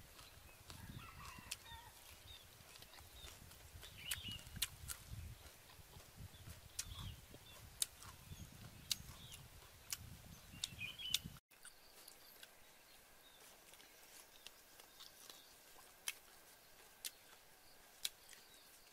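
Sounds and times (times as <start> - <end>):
bird-like chirps: 0.2 - 5.7, 6.3 - 15.8.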